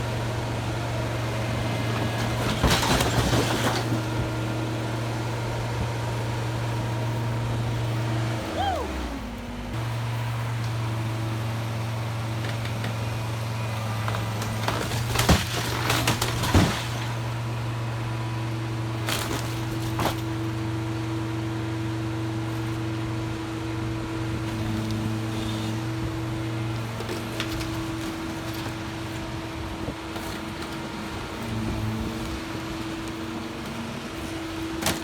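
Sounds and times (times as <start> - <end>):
engine running steadily: 0.0 - 35.0.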